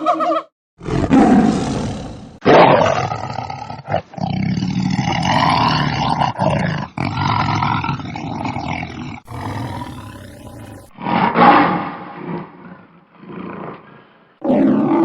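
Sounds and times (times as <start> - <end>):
large animal roaring: 0.8 - 3.6, 5.2 - 6.1, 9.3 - 11.4.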